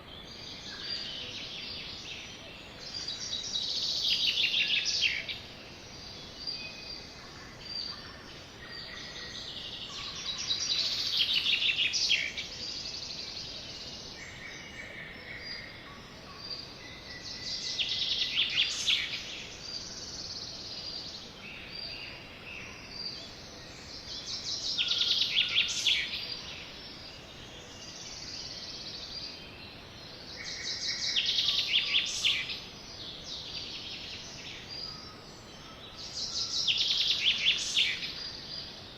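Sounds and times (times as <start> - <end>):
sparrows chirping: 16.6 - 27.0, 27.6 - 38.8.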